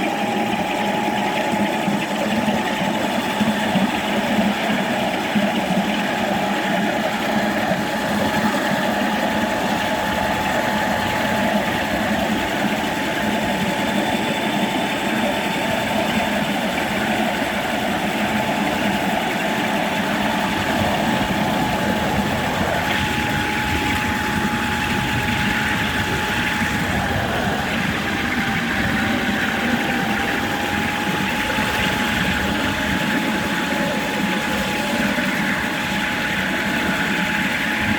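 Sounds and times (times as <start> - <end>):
electric toy train motor whine: 0.0 - 37.9.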